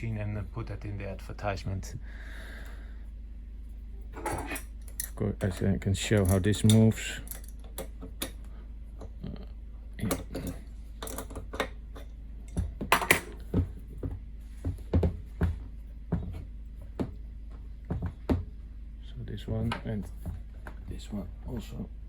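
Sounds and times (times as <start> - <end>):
steady low hum: 0.0 - 22.0
metal clicks and clinks: 4.2 - 8.4.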